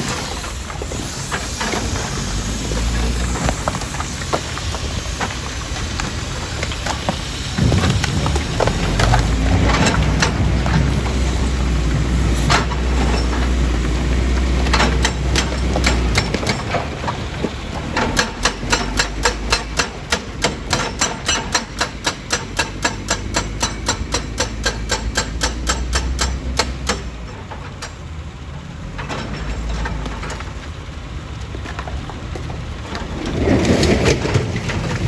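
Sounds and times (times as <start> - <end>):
heavy machinery engine hum: 0.0 - 35.0
machine knocking: 6.6 - 28.0.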